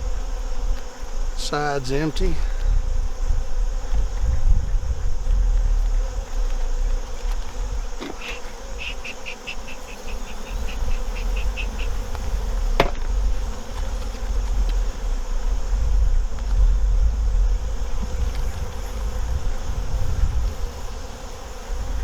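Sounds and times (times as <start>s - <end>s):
bees humming: 0.0s - 22.0s
sharp knock: 12.8s - 13.1s.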